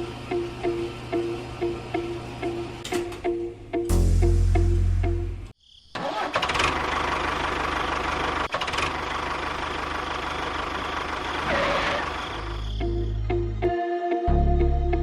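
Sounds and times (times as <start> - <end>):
music: 0.0 - 5.5, 12.8 - 15.0
deep hum: 3.9 - 5.5.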